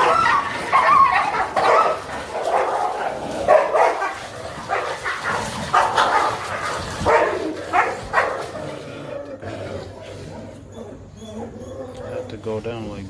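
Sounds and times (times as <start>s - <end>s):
dogs barking in a scuffle: 0.0s - 9.3s.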